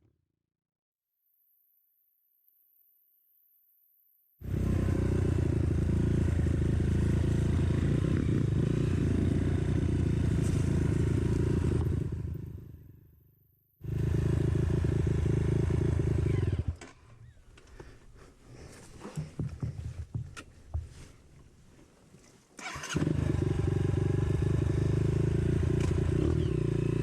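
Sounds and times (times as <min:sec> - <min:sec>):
motorcycle engine running: 0:04.4 - 0:13.2, 0:13.8 - 0:17.4, 0:22.6 - 0:27.0.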